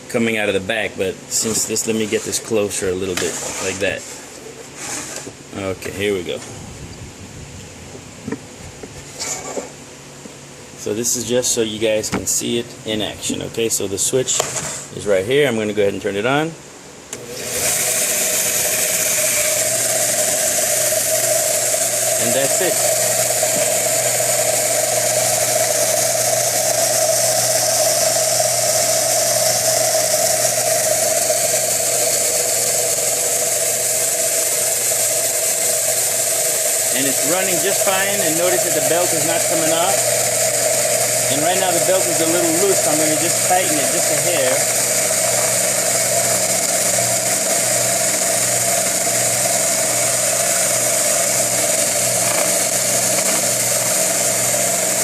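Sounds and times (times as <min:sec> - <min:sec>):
belt sander humming: 0:17.1 - 0:55.0.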